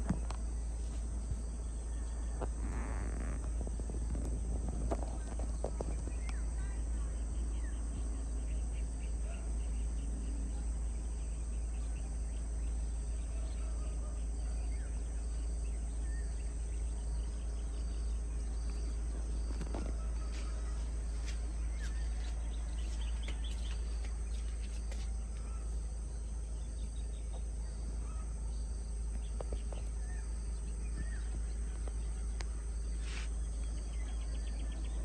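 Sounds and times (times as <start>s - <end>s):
steady low rumble: 0.0s - 13.2s
crickets buzzing: 0.0s - 35.0s
faint bird chirps: 0.0s - 35.0s
pulsing insect call: 0.0s - 35.0s.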